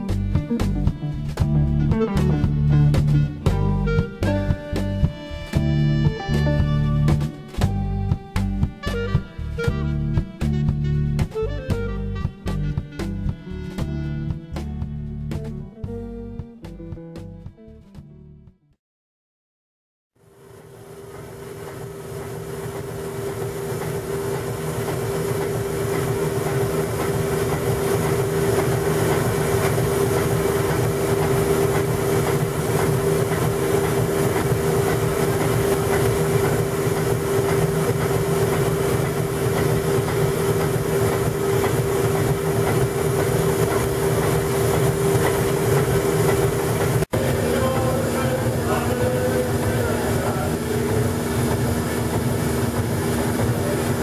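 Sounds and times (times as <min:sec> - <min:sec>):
machinery hum: 0:20.2 - 0:54.0
machinery whine: 0:20.2 - 0:54.0
steam hiss: 0:20.4 - 0:54.0.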